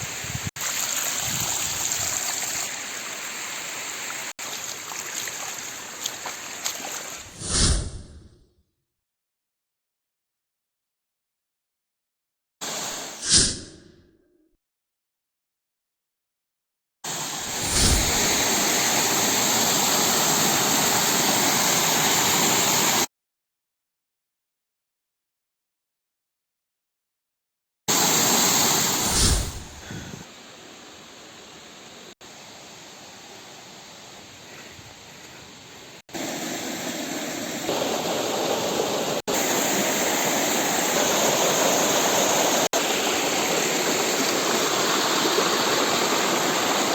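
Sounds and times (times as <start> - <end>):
waterfall rushing: 17.1 - 23.1, 36.2 - 46.9.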